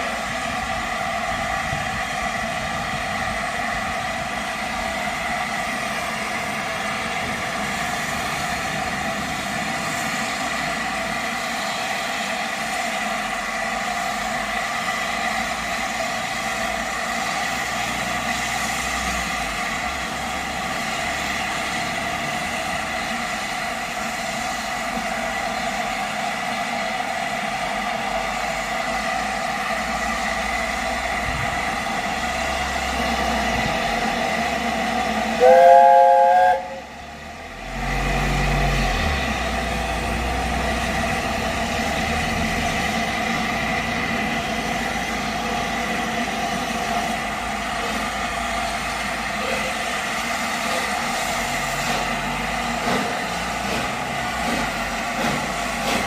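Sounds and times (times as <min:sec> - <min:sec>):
steam locomotive chime whistle: 0:35.4 - 0:37.0.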